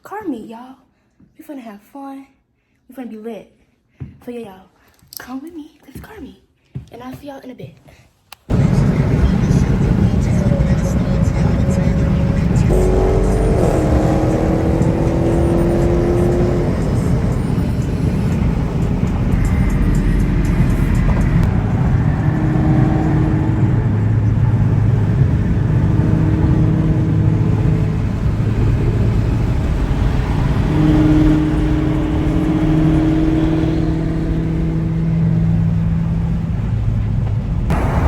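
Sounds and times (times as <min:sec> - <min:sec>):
road rumble: 0:08.4 - 0:38.0
car engine: 0:08.5 - 0:38.0.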